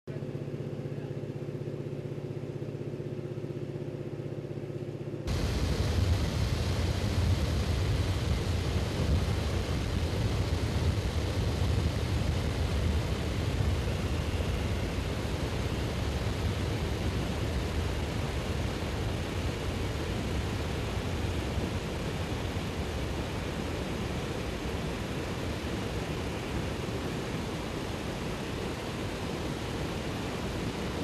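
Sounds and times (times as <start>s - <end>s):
airplane engine and cabin drone: 0.1s - 31.0s.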